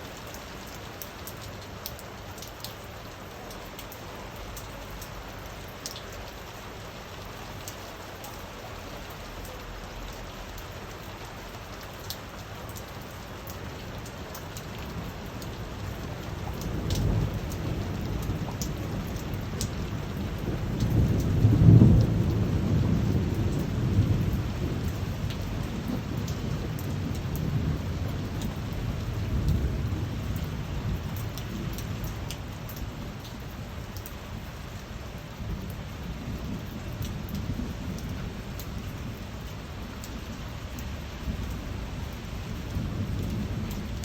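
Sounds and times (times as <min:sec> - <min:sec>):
steady rain: 0:00.0 - 0:44.0
low rumble of thunder: 0:12.7 - 0:44.0.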